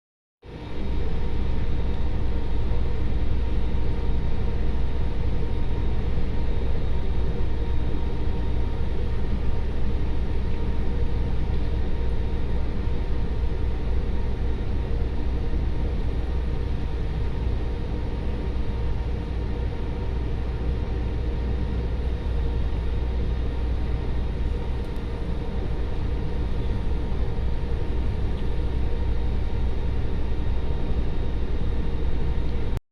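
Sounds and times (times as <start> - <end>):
faint steady hum: 0.5 - 32.8
ship engines droning: 15.9 - 32.8.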